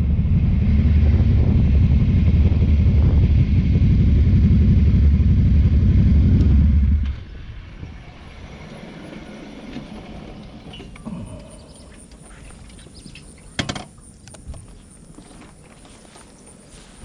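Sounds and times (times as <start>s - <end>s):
motorcycle engine pulsing: 0.0s - 8.6s.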